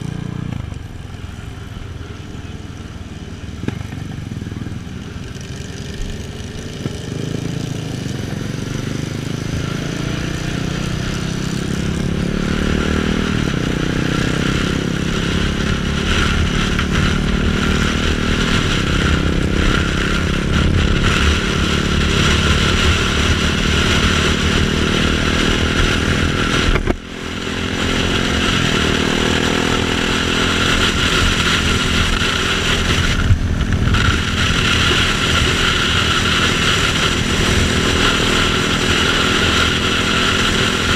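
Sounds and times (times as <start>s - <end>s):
motorcycle engine revving: 0.0s - 40.9s
wind rush: 9.4s - 40.9s.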